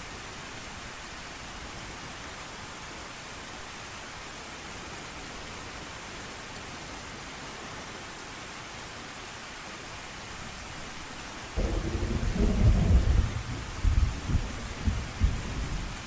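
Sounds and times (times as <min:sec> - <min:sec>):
steady rain: 0:00.0 - 0:16.0
deep thunder rumble: 0:11.6 - 0:16.0.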